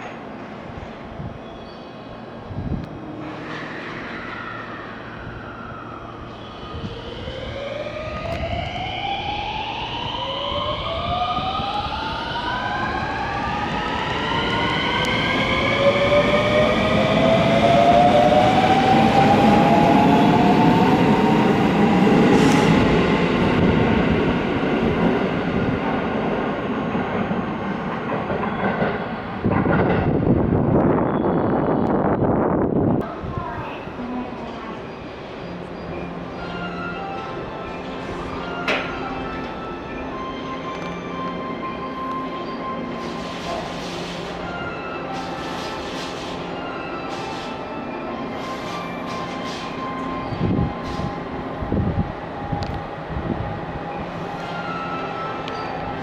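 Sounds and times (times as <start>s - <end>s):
train wheels rumbling on rails: 12.8s - 35.8s, 45.1s - 47.6s, 48.2s - 56.0s.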